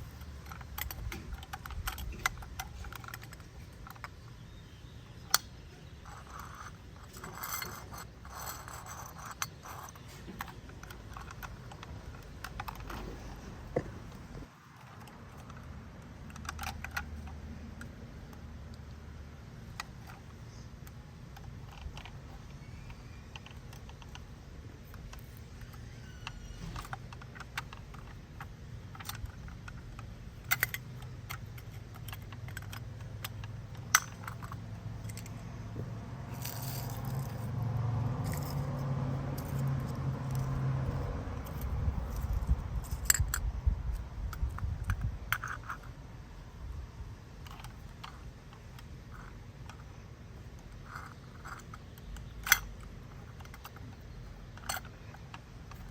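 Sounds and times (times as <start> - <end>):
plastic toy clicks and rattles: 0.0 - 4.6, 5.2 - 13.1, 14.8 - 35.4, 36.3 - 46.0, 47.4 - 55.9.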